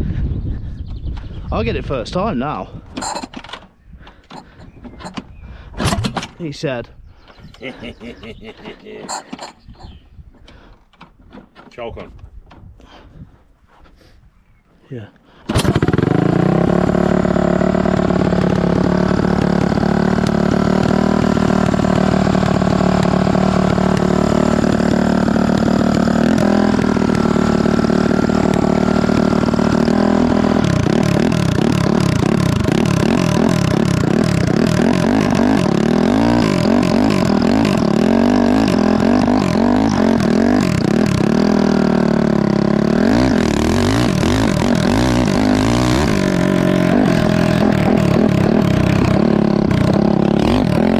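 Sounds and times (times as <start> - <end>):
motorcycle engine idling and revving: 3.0 - 3.6, 15.5 - 50.9.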